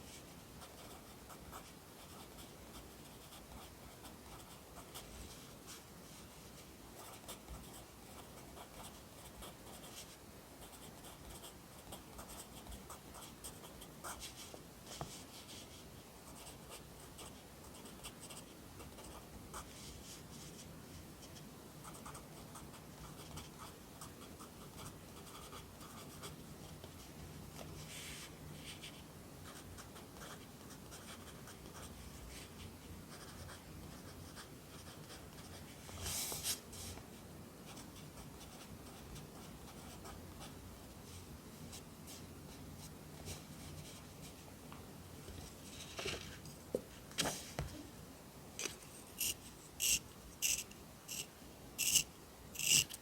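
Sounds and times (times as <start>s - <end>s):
pencil scratching on paper: 49.2s - 52.0s, 52.6s - 53.0s.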